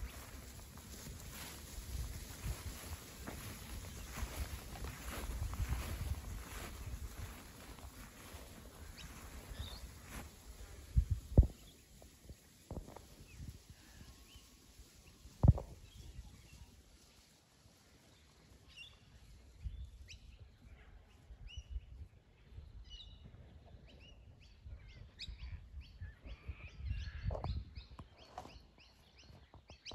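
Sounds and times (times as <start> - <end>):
small birds chirping: 0.0 - 17.4, 18.0 - 29.9.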